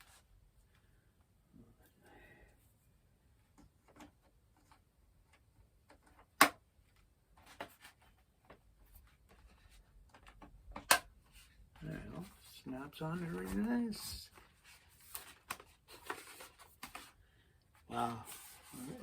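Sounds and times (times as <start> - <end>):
plastic part snapping into place: 10.8 - 11.1.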